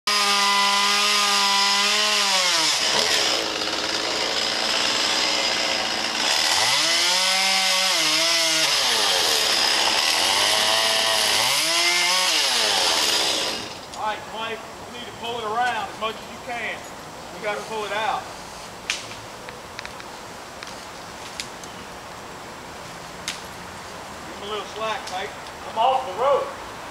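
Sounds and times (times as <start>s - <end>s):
chainsaw cutting wood: 0.1s - 14.0s.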